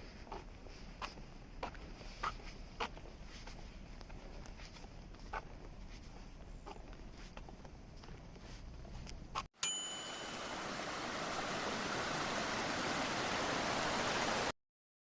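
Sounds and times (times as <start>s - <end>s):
bright bell ding: 9.6s - 10.8s.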